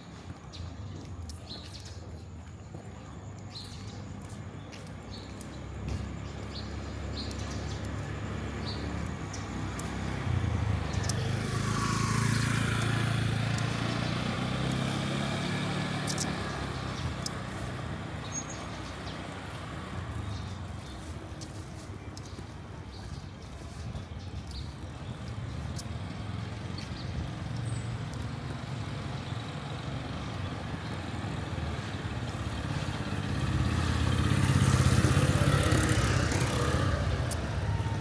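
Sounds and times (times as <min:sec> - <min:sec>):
vehicle passing by: 0:05.4 - 0:21.9, 0:24.9 - 0:38.0.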